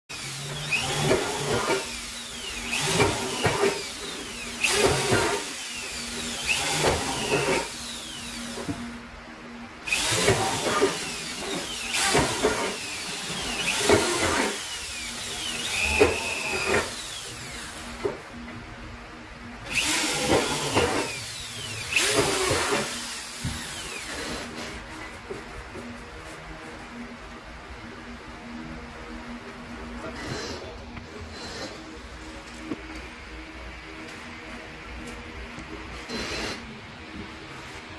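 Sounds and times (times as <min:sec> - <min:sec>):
electric drill boring metal: 0:00.1 - 0:09.0, 0:09.8 - 0:18.2, 0:19.6 - 0:24.7.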